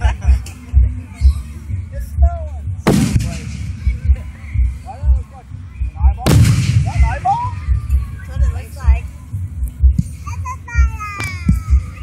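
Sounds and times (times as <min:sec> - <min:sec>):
faint voices: 0:00.0 - 0:12.0
steady bass beat: 0:00.0 - 0:12.0
fireworks bursting with bangs: 0:02.9 - 0:04.0, 0:06.3 - 0:07.1.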